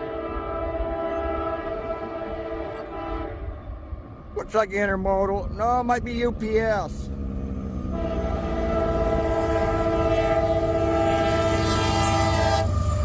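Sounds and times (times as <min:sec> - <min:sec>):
train air horn blast: 0:00.0 - 0:03.6, 0:07.9 - 0:12.9
train rumbling: 0:00.0 - 0:13.0.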